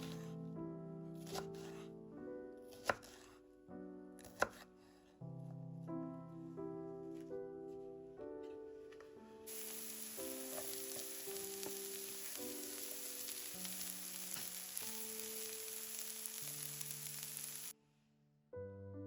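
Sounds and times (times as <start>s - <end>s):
soft piano background music: 0.0s - 19.0s
food sizzling in hot oil: 9.5s - 17.7s.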